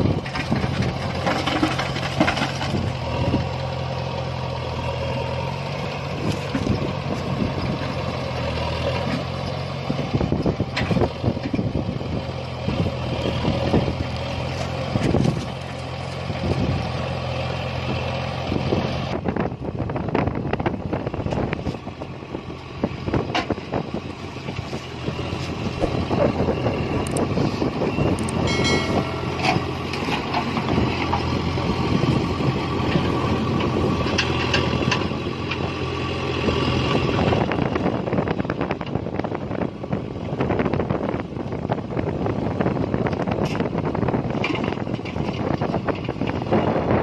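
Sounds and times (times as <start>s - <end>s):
heavy diesel engine running: 0.0s - 47.0s
high whine: 28.1s - 30.2s
clanks and knocks: 28.4s - 31.3s.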